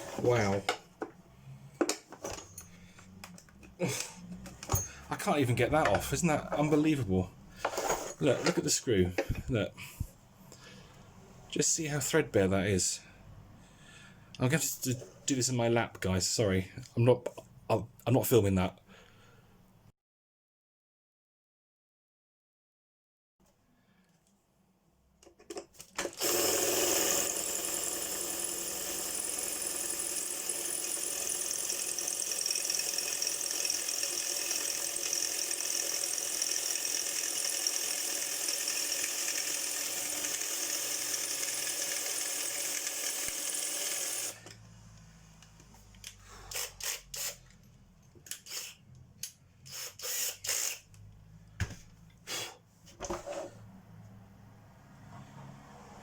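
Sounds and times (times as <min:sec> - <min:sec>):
power tool running: 0:26.1 - 0:44.5, 0:48.3 - 0:48.8, 0:49.6 - 0:50.9.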